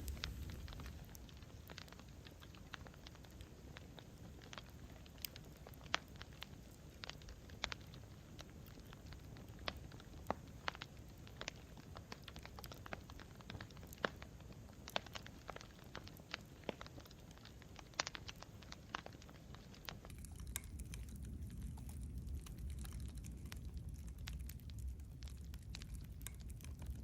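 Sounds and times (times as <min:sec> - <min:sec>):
low rumble: 0:00.0 - 0:00.9
campfire crackling: 0:00.0 - 0:27.0.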